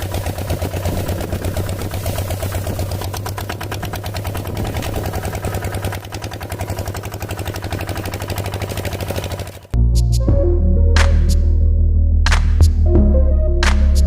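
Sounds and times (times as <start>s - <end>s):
small tractor engine chugging: 0.0s - 9.8s.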